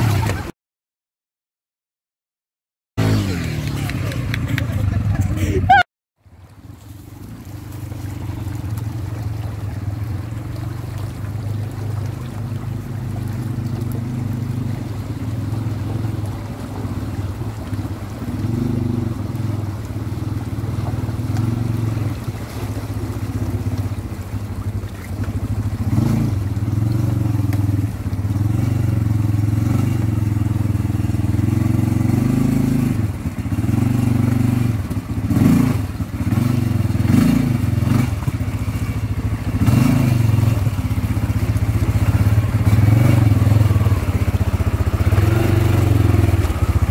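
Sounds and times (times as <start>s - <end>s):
quad bike engine revving: 0.0s - 0.5s, 3.0s - 5.8s, 13.2s - 22.4s, 25.2s - 46.9s.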